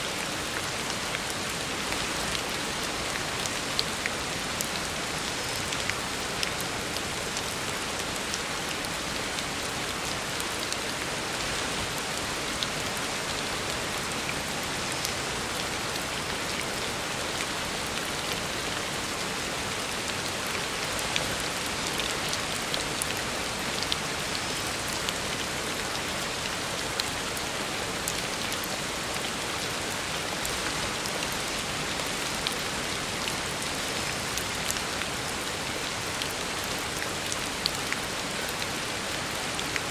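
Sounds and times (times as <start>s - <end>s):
heavy rain on a road: 0.0s - 39.9s.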